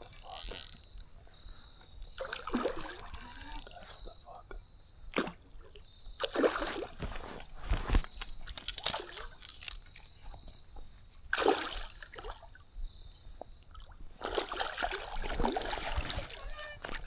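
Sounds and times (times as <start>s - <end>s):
fish splashing in water: 6.2s - 7.5s, 11.3s - 12.5s, 14.2s - 17.0s.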